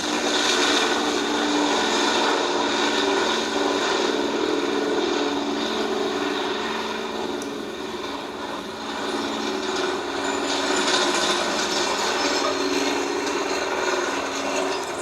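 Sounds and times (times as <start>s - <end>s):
jet engine hum: 0.0s - 15.0s.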